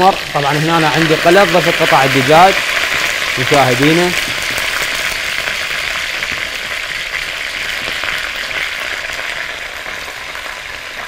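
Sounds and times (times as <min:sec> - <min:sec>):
chicken sizzling in a pot: 0:00.0 - 0:11.0.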